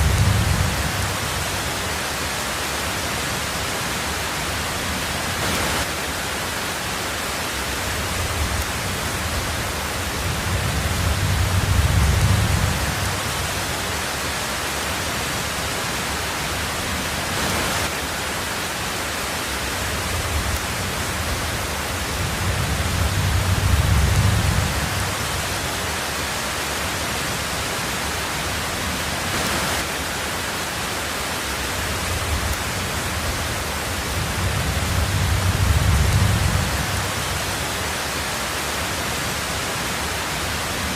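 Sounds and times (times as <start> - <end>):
low rumbles of thunder: 0.0 - 1.7, 8.0 - 13.8, 20.0 - 25.6, 32.0 - 37.7
heavy rain on a tin roof: 0.0 - 40.9.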